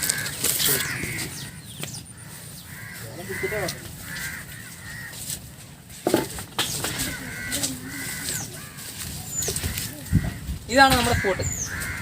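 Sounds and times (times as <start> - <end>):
crows cawing: 0.0 - 5.6, 6.6 - 12.0
small birds whistling: 9.2 - 10.0, 11.1 - 12.0.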